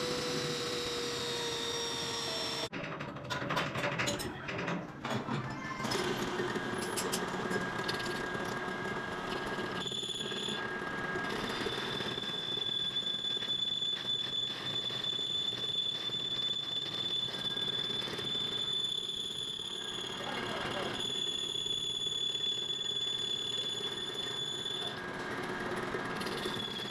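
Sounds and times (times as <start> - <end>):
high-pitched machine whine: 0.0 - 2.7, 5.8 - 26.9
clattering mechanical noise: 0.0 - 18.6.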